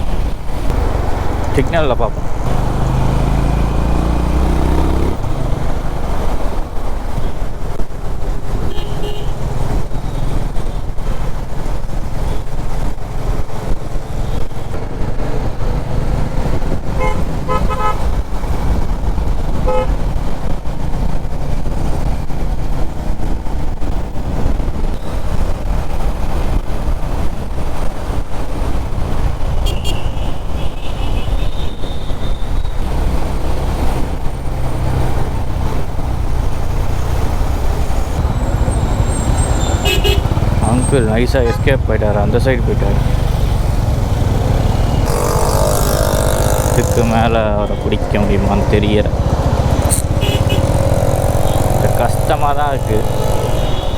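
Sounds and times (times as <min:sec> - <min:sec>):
wind rumble: 0:00.0 - 0:08.7, 0:09.4 - 0:53.9
motorcycle engine: 0:00.0 - 0:53.9
vehicle horn toots: 0:08.6 - 0:09.4, 0:17.0 - 0:18.1, 0:19.6 - 0:20.0, 0:29.6 - 0:32.5, 0:38.2 - 0:42.0, 0:44.5 - 0:48.6, 0:49.7 - 0:51.7, 0:53.0 - 0:53.9
high horn tone: 0:17.0 - 0:18.1, 0:19.6 - 0:20.0, 0:38.2 - 0:42.0, 0:43.9 - 0:48.7, 0:49.7 - 0:51.7, 0:53.0 - 0:53.9.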